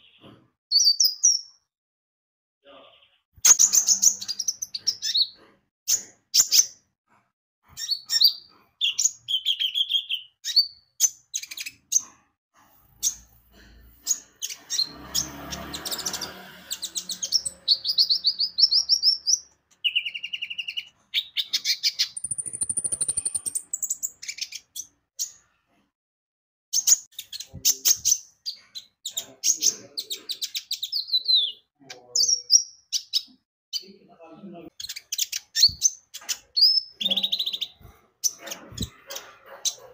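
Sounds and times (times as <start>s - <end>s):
sunbird singing high chirps: 16.9s - 24.4s.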